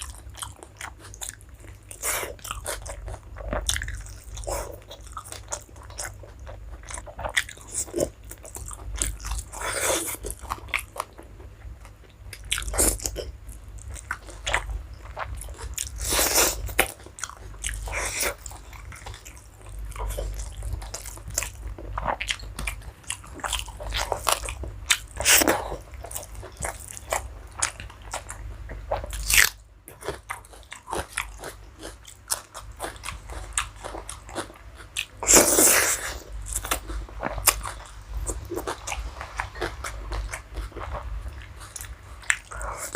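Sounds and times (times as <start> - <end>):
person chewing: 0.0 - 42.9.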